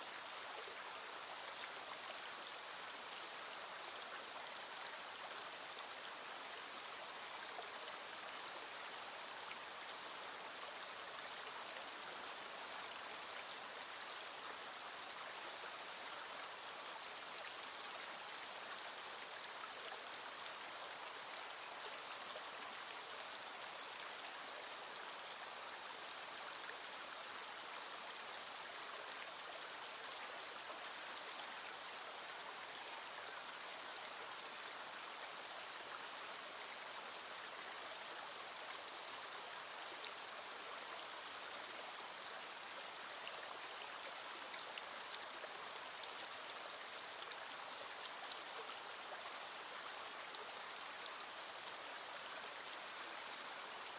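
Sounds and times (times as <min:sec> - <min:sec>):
small stream flowing: 0:00.0 - 0:53.9.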